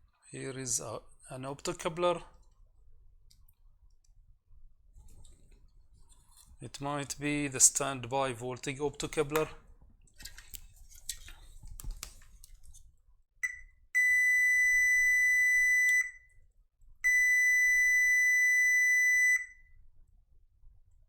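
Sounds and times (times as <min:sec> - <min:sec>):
multimeter beeps: 0:13.4 - 0:16.3, 0:17.0 - 0:19.7.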